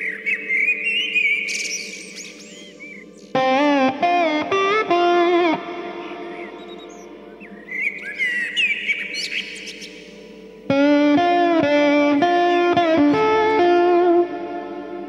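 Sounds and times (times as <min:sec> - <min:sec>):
birds chirping: 0:00.0 - 0:14.0
soft music bed: 0:00.0 - 0:15.0
electric guitar with slides: 0:03.3 - 0:07.1, 0:10.1 - 0:15.0.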